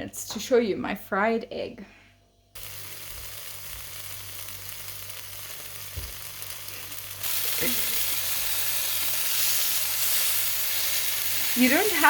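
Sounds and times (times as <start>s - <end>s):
fruit sizzling in oil: 2.6s - 12.0s.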